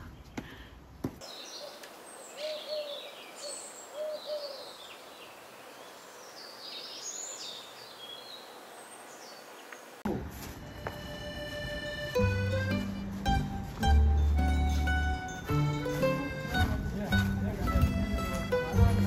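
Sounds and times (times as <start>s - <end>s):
low bird calls: 0.0s - 9.9s
birds chirping and twittering: 0.0s - 10.0s.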